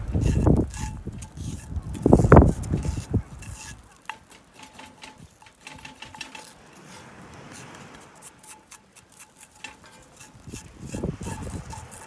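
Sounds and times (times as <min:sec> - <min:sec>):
crackling and popping: 0:00.0 - 0:06.9
seawater boiling with soft hiss: 0:00.0 - 0:12.0.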